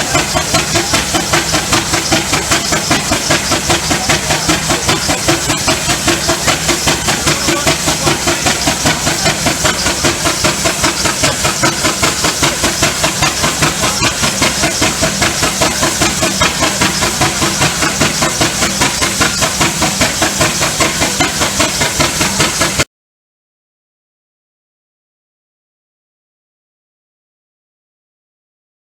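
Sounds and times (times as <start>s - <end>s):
steam hissing: 0.0s - 22.8s
steam exhaust beat: 0.0s - 22.9s.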